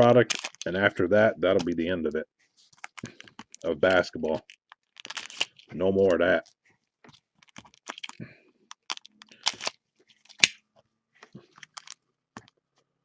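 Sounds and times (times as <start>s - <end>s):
card packs crinkling: 0.0s - 1.8s, 2.7s - 6.5s, 7.1s - 10.6s, 11.2s - 12.5s.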